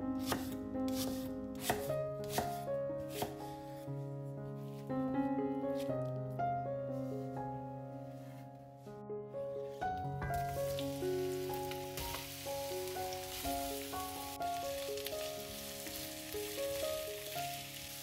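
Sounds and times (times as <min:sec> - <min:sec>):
soft piano music: 0:00.0 - 0:18.0
food sizzling in frying pan: 0:10.3 - 0:18.0.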